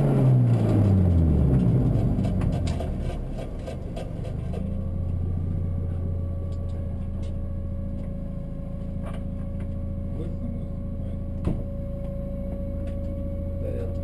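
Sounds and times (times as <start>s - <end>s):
car engine running from inside: 0.0s - 14.0s
faint steady whine: 4.6s - 14.0s.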